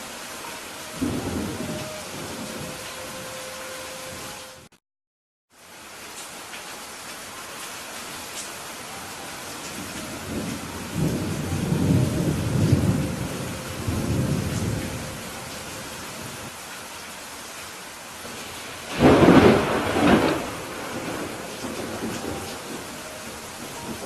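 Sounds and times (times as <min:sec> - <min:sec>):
steady rain: 0:00.0 - 0:04.8, 0:05.5 - 0:24.0
thunder rumbling: 0:00.8 - 0:03.4, 0:09.7 - 0:16.5, 0:18.2 - 0:24.0
thunder clap: 0:18.4 - 0:22.9.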